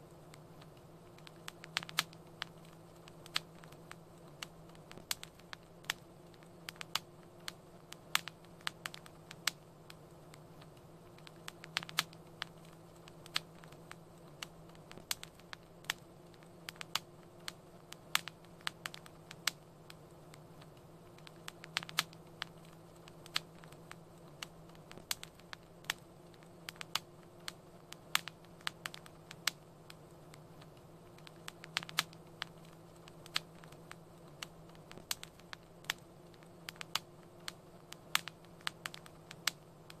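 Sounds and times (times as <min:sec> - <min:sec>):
low rumble of flames: 0:00.0 - 0:40.0
wood fire crackling: 0:00.0 - 0:40.0.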